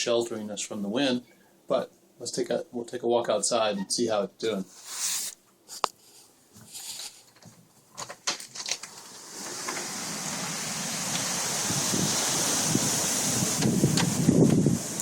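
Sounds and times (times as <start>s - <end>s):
hurricane wind rushing: 9.2s - 15.0s.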